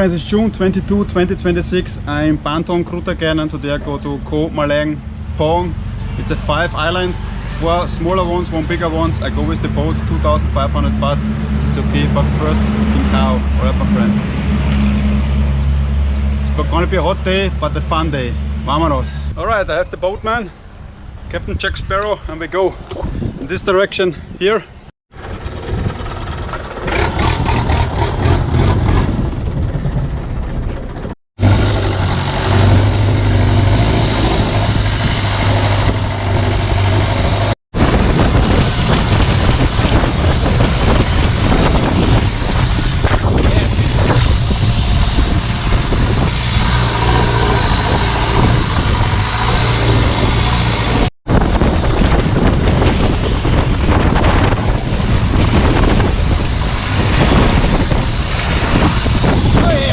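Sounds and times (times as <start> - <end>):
wind noise: 0.0 - 59.9
boat engine droning: 25.2 - 43.2, 43.8 - 52.6.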